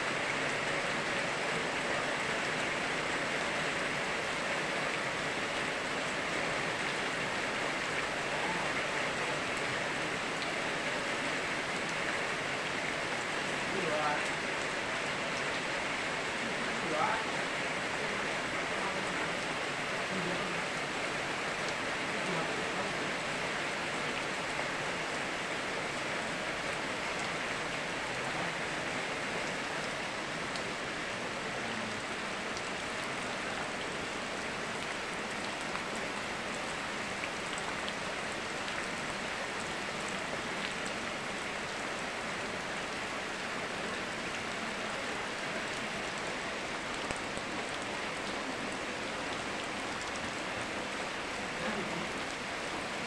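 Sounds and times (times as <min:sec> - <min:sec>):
river water flowing: 0:00.0 - 0:53.0
steady rain falling: 0:00.0 - 0:53.0.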